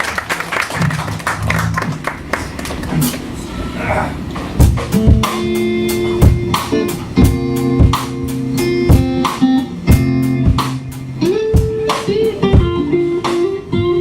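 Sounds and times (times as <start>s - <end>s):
steady drum beat: 4.4s - 13.6s
electric guitar sustained notes: 4.9s - 14.0s.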